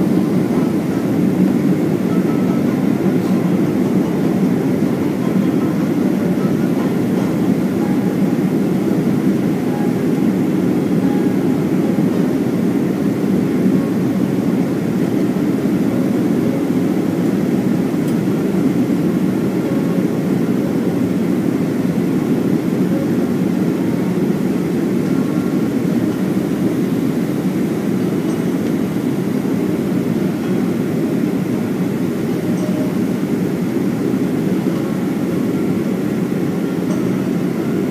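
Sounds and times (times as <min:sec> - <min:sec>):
airflow over aircraft fuselage: 0:00.0 - 0:37.9
jet engines droning: 0:00.0 - 0:37.9.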